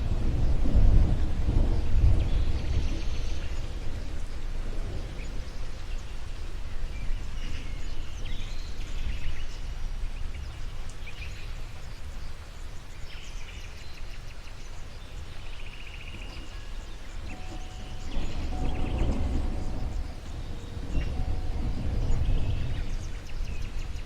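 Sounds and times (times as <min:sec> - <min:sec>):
birds chirping: 0:01.5 - 0:24.0
steady low rumble: 0:17.0 - 0:24.0
bird trill: 0:17.2 - 0:24.0.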